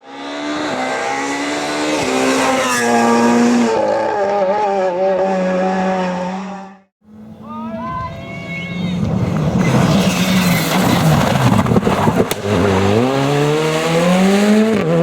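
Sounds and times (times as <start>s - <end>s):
tyre squeal: 8.3s - 13.0s.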